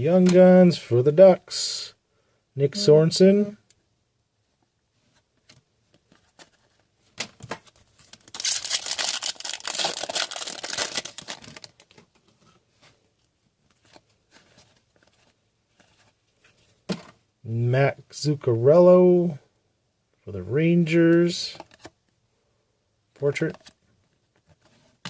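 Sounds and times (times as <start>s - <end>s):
foil wrapper tearing and crinkling: 8.1s - 12.0s.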